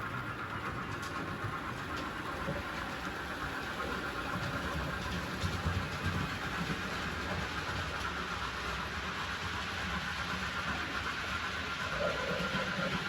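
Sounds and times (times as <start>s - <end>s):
wheels rumbling on rails: 0.0s - 13.0s.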